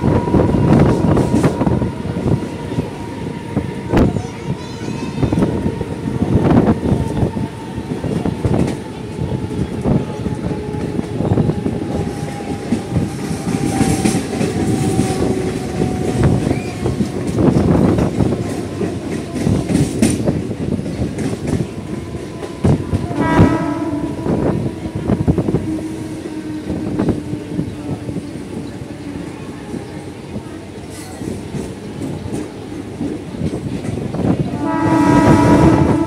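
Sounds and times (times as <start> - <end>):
train wheels rattling over rails: 0.0 - 36.0
train horn blast: 21.8 - 27.1, 34.5 - 36.0.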